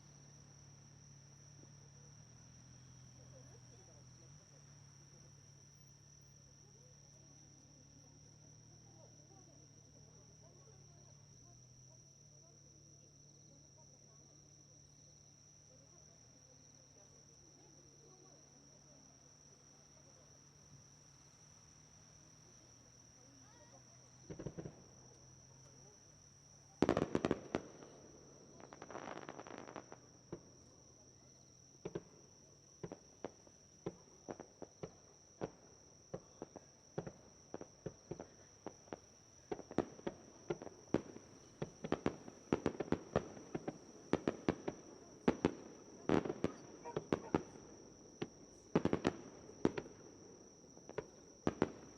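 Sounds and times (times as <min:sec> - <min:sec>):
fireworks crackling: 0:23.4 - 0:26.0, 0:26.6 - 0:30.7, 0:31.6 - 0:51.9
fireworks bangs: 0:23.5 - 0:25.9, 0:26.8 - 0:30.7, 0:31.8 - 0:32.2, 0:32.8 - 0:51.9.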